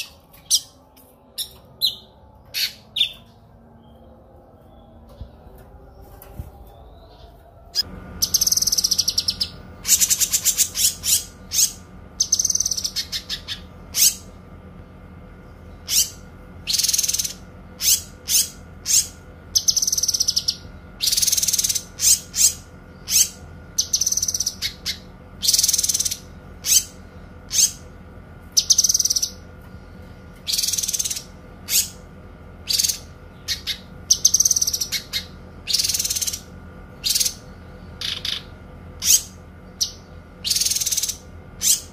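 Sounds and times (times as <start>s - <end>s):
songbird singing trills: 0.0s - 14.3s, 15.5s - 27.9s, 28.5s - 29.4s, 30.1s - 32.0s, 32.6s - 41.9s
faint steady hum: 0.0s - 41.9s.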